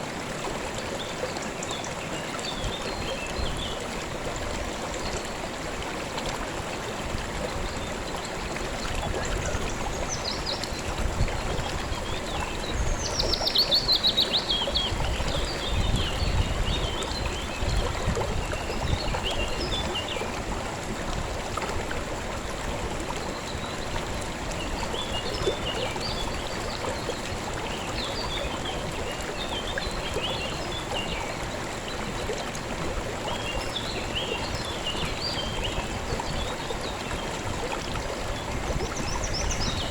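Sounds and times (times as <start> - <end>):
river flowing: 0.0 - 39.9
small birds chirping: 11.9 - 17.7.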